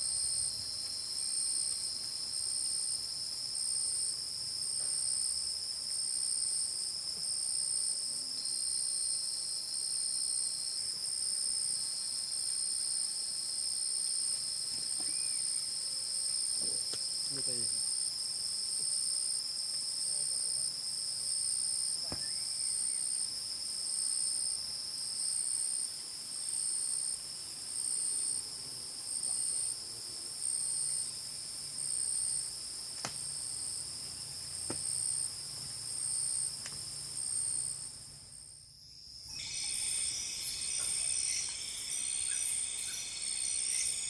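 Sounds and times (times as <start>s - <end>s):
insect chorus trilling: 0.0s - 44.0s.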